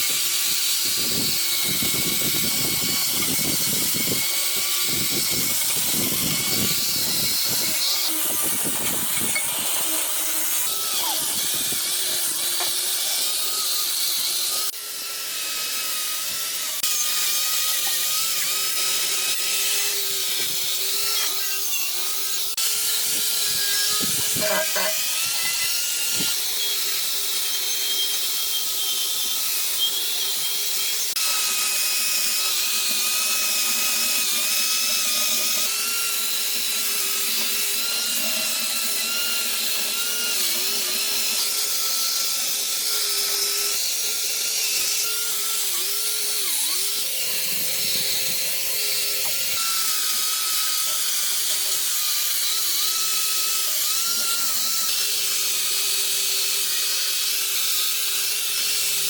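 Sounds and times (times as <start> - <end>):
power tool motor whine: 0.0 - 59.0.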